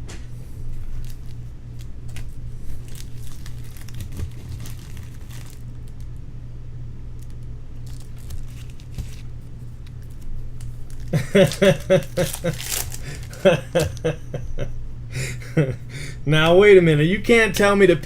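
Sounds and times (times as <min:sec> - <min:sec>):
steady low hum: 0:00.0 - 0:18.0
foil wrappers crinkling and tearing: 0:00.6 - 0:06.2, 0:07.1 - 0:14.2.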